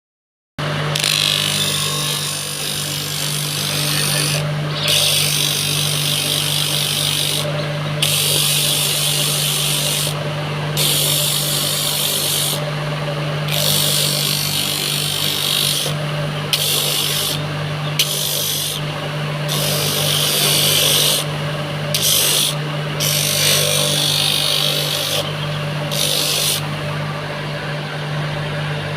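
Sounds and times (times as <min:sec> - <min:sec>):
power tool motor hum: 0:00.7 - 0:26.9.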